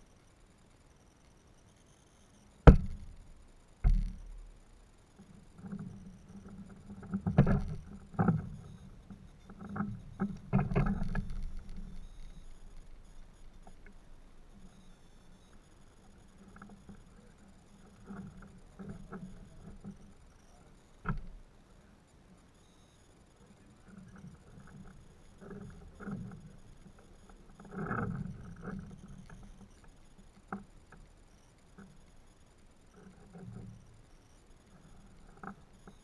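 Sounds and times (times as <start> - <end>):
sharp knocks and bumps: 2.7 - 3.2, 3.8 - 4.4.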